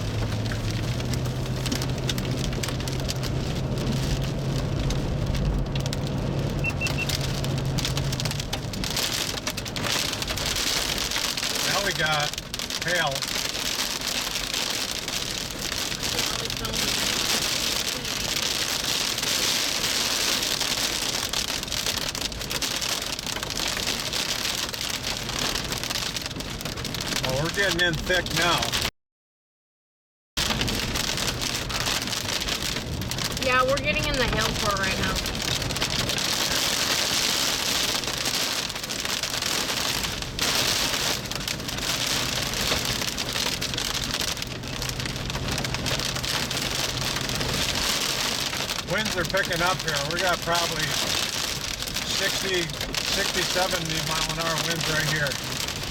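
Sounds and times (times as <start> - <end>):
hail and rain pelting a vehicle: 0.0 - 28.9, 30.4 - 55.9.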